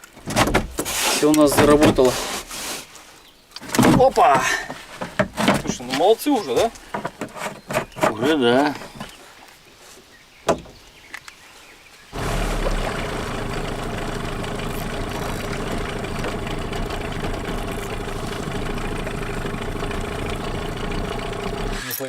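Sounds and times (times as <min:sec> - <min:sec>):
boat motor humming: 0:12.2 - 0:21.8.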